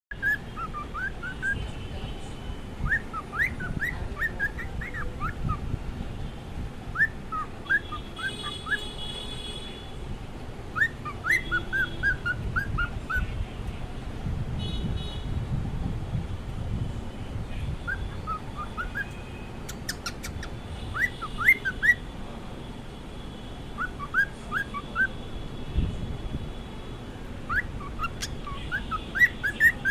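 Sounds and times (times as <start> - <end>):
cockatiel whistling: 0.1 - 1.6, 2.8 - 5.6, 6.9 - 8.8, 10.8 - 13.3, 17.9 - 22.0, 23.8 - 25.1, 27.5 - 29.9
harsh chirping call: 0.1 - 1.6, 2.8 - 5.6, 6.9 - 9.0, 10.8 - 13.3, 17.8 - 22.1, 23.8 - 25.2, 27.5 - 29.9.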